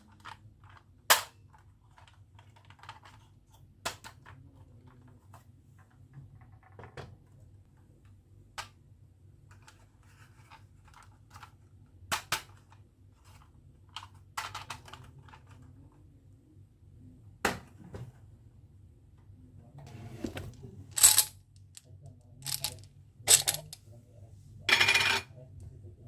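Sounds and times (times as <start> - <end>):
marbles clacking on wooden run: 22.4 - 23.8.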